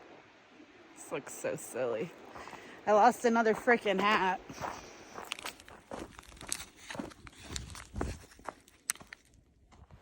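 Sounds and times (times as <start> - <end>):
footsteps on a trail: 2.1 - 10.0.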